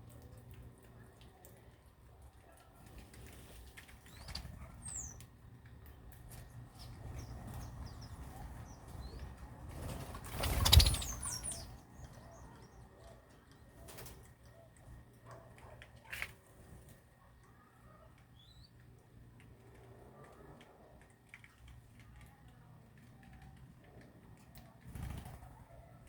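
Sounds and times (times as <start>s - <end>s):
birds flapping wings: 9.6s - 11.7s, 24.8s - 25.7s.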